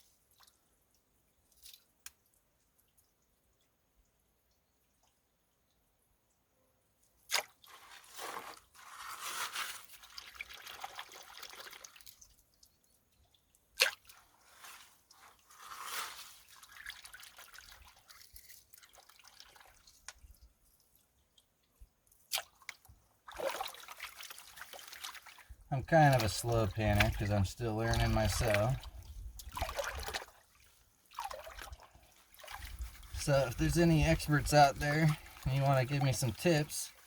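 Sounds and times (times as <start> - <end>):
water sloshing in a pan: 7.4 - 37.0.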